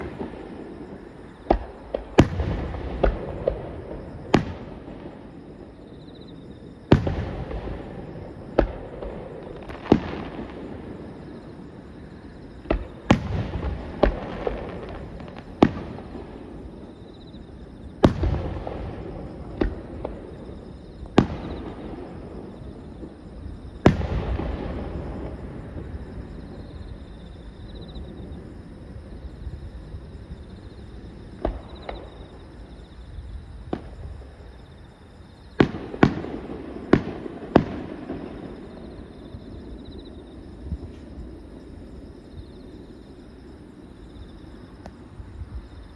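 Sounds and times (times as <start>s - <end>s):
fireworks bangs with echo: 0.0s - 5.4s, 6.9s - 11.4s, 12.6s - 16.7s, 18.0s - 27.1s, 31.3s - 32.7s, 33.5s - 34.5s, 35.4s - 41.1s.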